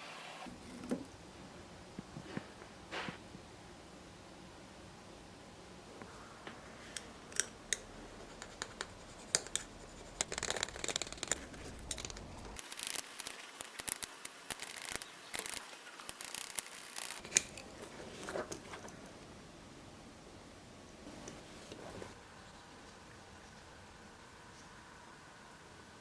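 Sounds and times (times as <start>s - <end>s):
sharp metallic clicks: 7.0s - 17.6s
metal scratching: 7.7s - 18.5s.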